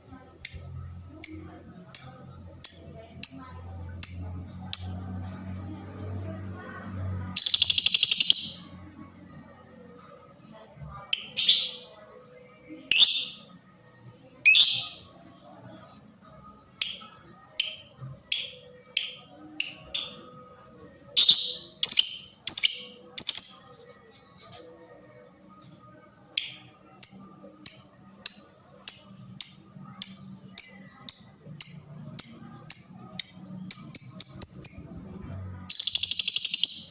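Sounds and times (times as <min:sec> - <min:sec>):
lovebird shrill chirps: 0:07.4 - 0:08.6, 0:12.9 - 0:13.5, 0:35.7 - 0:36.9.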